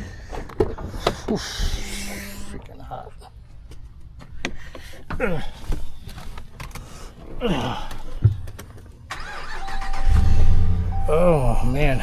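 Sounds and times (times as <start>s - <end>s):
man sighing or groaning: 5.1s - 5.7s, 7.4s - 8.2s.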